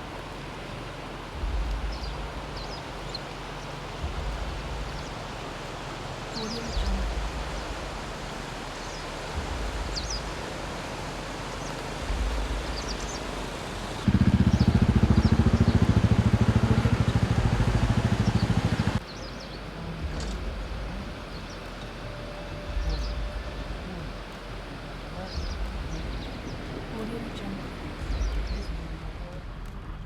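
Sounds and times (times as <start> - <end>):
loud low throbbing engine: 0.0 - 30.0
bird chirps: 11.5 - 24.2.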